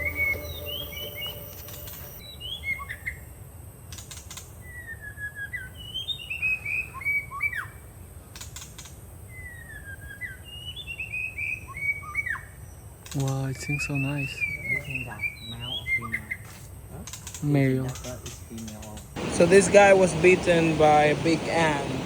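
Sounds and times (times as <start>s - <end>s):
high-pitched background hum: 0.0s - 2.3s
songbird singing: 0.0s - 22.0s.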